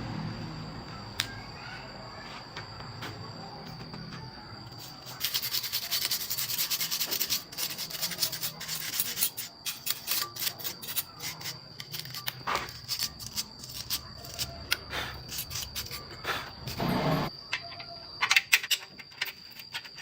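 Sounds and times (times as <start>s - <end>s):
abrasive scraping on metal part: 4.8s - 17.3s.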